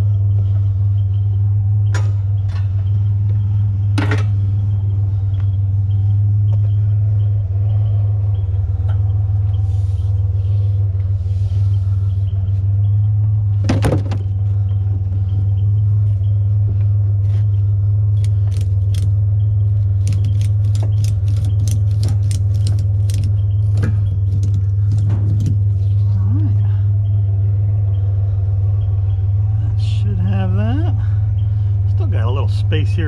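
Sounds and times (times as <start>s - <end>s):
truck engine idling: 0.0s - 33.0s
ratchet strap clicking: 18.2s - 19.1s, 20.0s - 25.5s.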